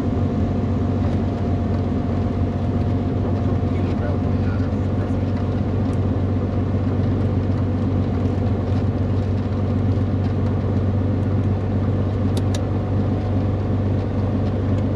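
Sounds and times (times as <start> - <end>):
piston aircraft engine drone: 0.0 - 14.9.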